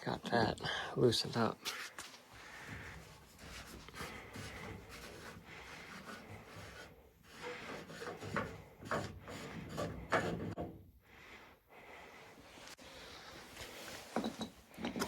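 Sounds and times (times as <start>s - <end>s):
metal rubbing and scraping: 2.6s - 10.7s.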